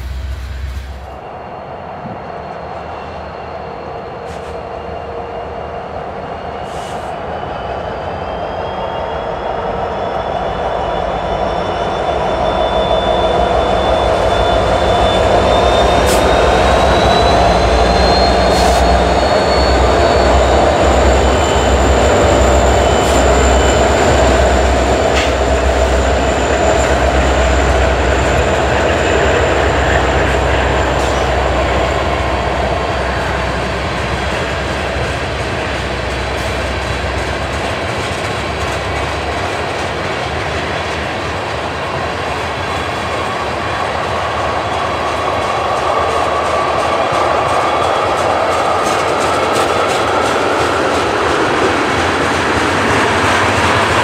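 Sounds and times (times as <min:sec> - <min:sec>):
diesel locomotive engines rumbling: 0:00.0 - 0:54.0
freight wheels clattering on rail: 0:13.9 - 0:54.0.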